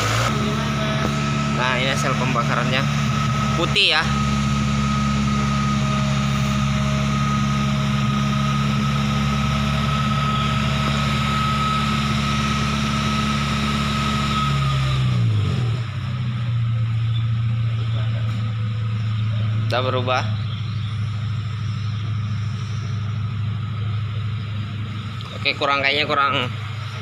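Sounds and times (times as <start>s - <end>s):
thin steady whine: 0.0s - 15.0s, 15.9s - 27.0s
car engine running: 0.0s - 27.0s.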